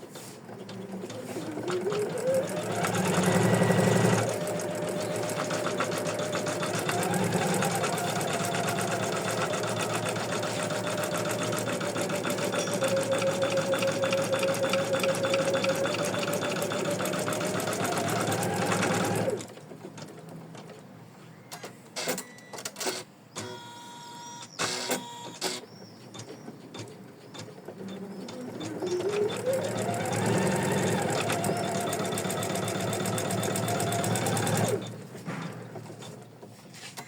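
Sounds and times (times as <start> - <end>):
embroidery machine stitching: 0.6 - 20.2, 26.8 - 36.3
brief tones: 21.4 - 26.3.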